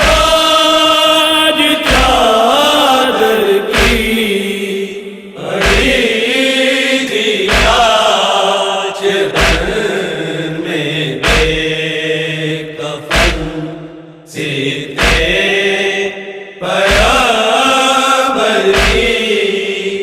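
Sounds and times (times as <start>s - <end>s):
men chanting a lament: 0.0s - 20.0s
chest-beating thumps: 3.7s - 4.2s, 5.6s - 6.0s, 7.5s - 7.9s, 9.4s - 9.8s, 11.2s - 11.7s, 13.1s - 13.6s, 15.0s - 15.4s, 16.9s - 17.2s, 18.7s - 19.2s.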